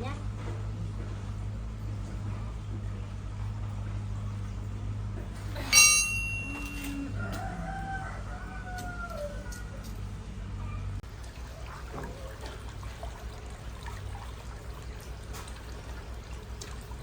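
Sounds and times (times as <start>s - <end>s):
steady low hum: 0.0s - 17.0s
metallic clang: 5.6s - 7.1s
rooster crowing: 6.5s - 10.2s.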